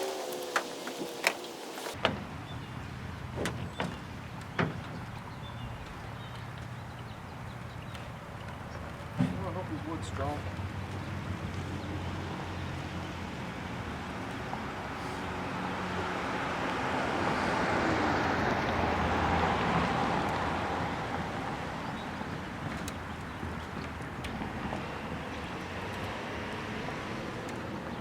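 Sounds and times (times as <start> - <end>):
vehicle passing by: 9.4 - 28.0.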